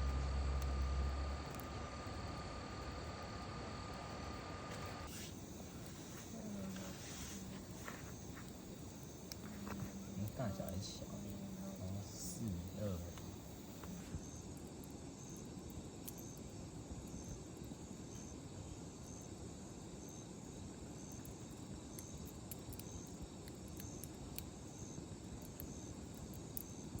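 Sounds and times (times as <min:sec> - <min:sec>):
wood fire crackling: 0:00.0 - 0:18.2
high insect chirp: 0:00.0 - 0:27.0.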